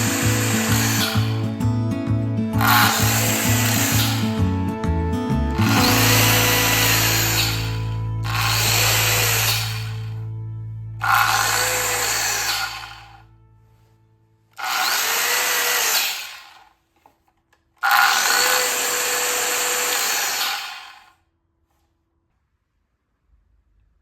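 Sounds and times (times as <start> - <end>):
circular saw running: 0.0 - 1.6, 2.6 - 4.6, 5.6 - 10.2, 11.0 - 13.3, 14.6 - 16.7, 17.8 - 21.2.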